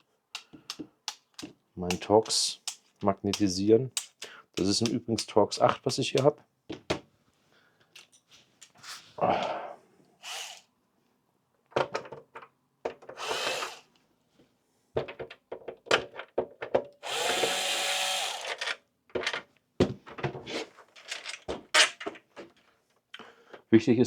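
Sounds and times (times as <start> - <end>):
clicks and taps of screws: 0.3 - 6.3
electric screwdriver whirring: 13.2 - 13.8, 17.0 - 18.6.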